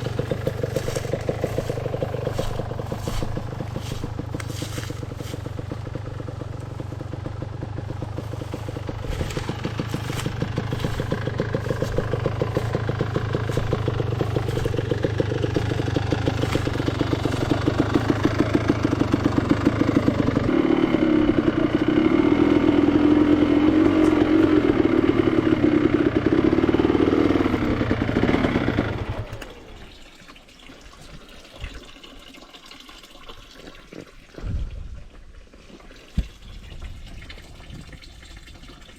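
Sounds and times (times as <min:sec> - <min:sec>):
motorcycle engine running: 0:00.0 - 0:29.8.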